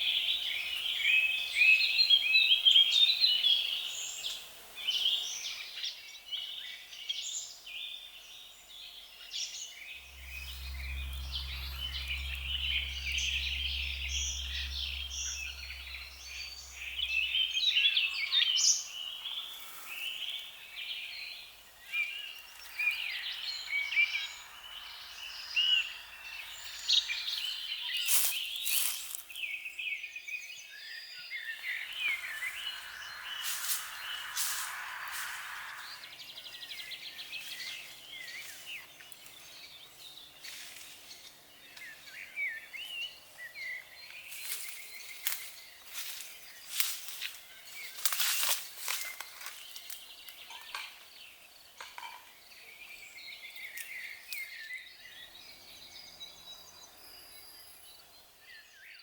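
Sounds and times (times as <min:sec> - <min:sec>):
birds chirping in chorus: 0:00.0 - 0:59.0
low steady hum: 0:09.8 - 0:19.8.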